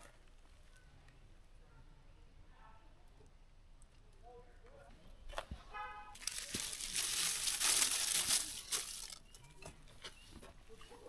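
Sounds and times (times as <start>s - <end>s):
crinkling rustling with crackles: 5.3s - 10.9s.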